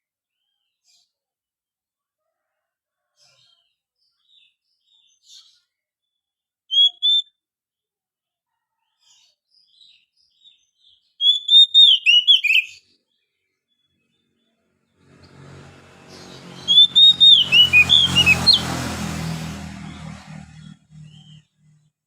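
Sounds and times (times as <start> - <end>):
bird singing whistled notes: 6.7 - 7.3, 11.1 - 12.8, 16.6 - 18.7.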